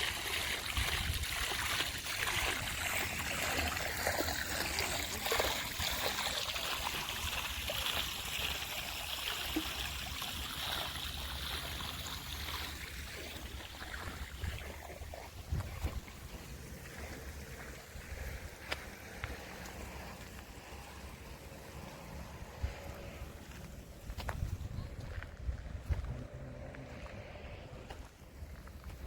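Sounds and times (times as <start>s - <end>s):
water trickling and flowing: 0.0s - 29.0s
low rumble: 21.0s - 28.9s.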